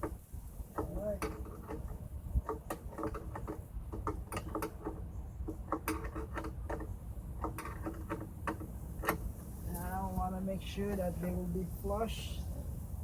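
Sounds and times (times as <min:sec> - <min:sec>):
metal hardware clicking: 0:00.0 - 0:09.4.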